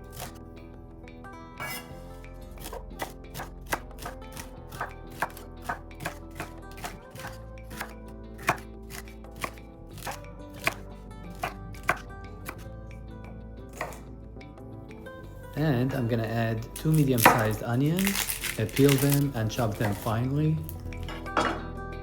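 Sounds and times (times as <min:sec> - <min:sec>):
background music: 0:00.0 - 0:22.0
knife chopping celery on board: 0:00.1 - 0:00.4, 0:01.6 - 0:01.9, 0:02.6 - 0:12.6, 0:13.8 - 0:14.0, 0:16.8 - 0:20.3.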